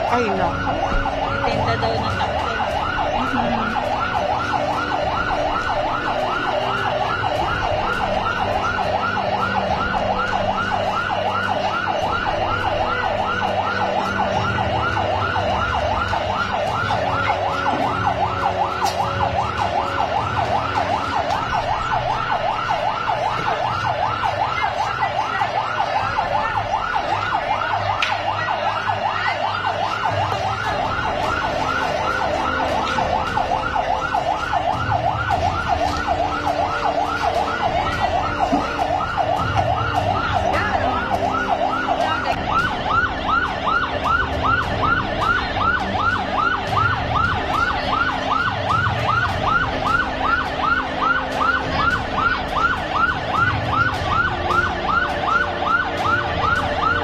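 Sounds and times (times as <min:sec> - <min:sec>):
siren yelping: 0:00.0 - 0:57.0.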